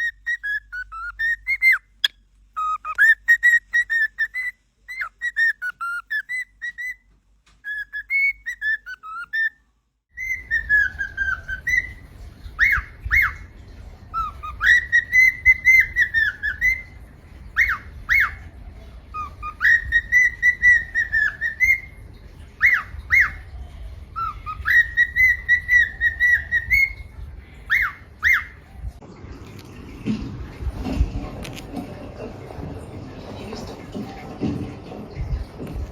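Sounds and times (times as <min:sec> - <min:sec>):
cockatiel whistling: 0:00.0 - 0:09.6, 0:10.2 - 0:13.5, 0:14.1 - 0:18.5, 0:19.1 - 0:23.6, 0:24.2 - 0:28.7
low steady hum: 0:00.0 - 0:35.9.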